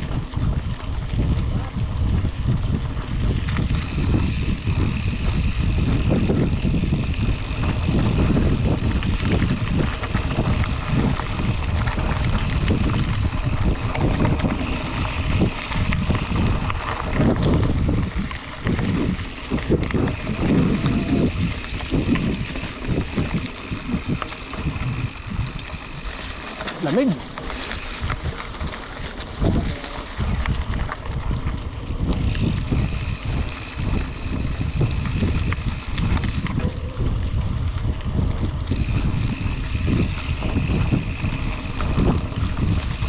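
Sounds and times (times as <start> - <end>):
bicycle tyre rumble on dirt: 0.0 - 43.0
wind buffeting microphone: 0.0 - 43.0.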